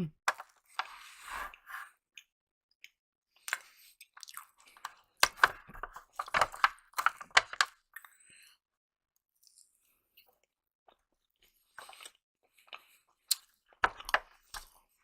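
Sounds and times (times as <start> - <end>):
chewing and biting food: 0.3 - 8.5, 9.4 - 15.0
food crunching: 2.2 - 8.2, 9.4 - 15.0.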